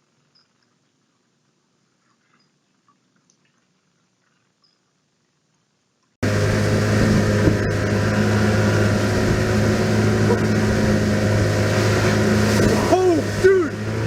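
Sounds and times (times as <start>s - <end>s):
engine running with low hum: 6.2s - 14.0s.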